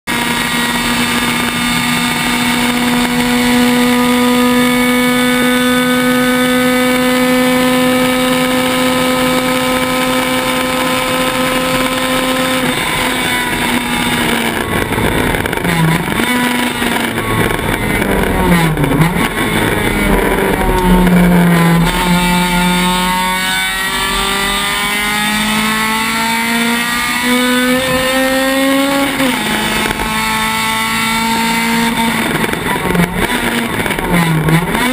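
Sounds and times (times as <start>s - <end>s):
race car engine revving: 0.1s - 34.9s.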